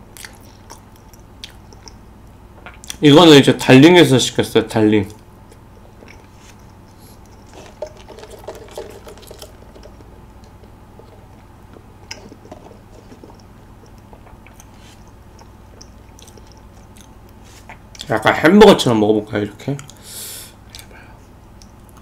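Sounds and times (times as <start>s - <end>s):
faint chewing: 0.1s - 3.0s, 5.0s - 18.1s, 20.7s - 22.0s.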